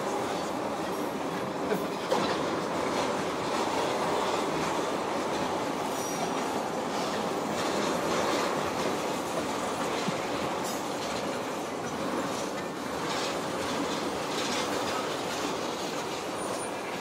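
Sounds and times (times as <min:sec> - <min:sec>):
freight train rolling past: 0:00.0 - 0:17.0.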